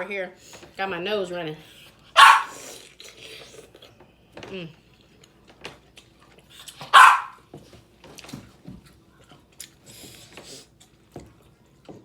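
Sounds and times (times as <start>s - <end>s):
chewing: 1.9s - 4.1s, 4.7s - 7.0s, 8.1s - 12.0s.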